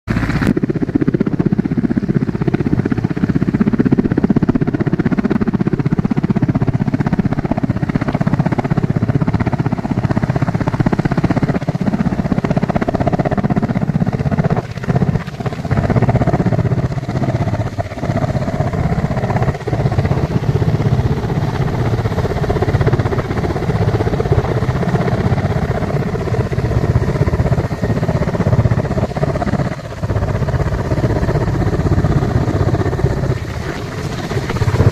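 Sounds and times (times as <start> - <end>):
helicopter rotor chopping: 0.1 - 34.9.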